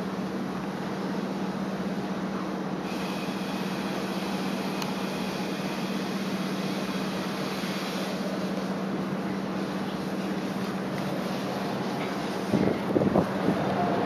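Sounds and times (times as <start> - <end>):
strong wind rushing: 12.5 - 14.0.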